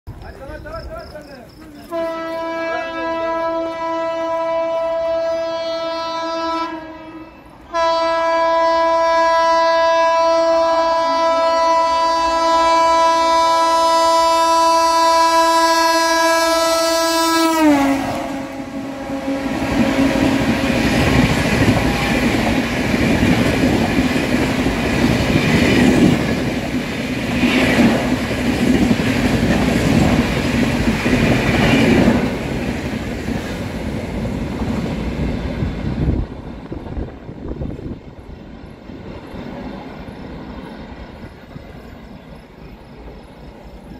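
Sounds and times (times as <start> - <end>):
locomotive horn blowing: 1.8 - 21.1.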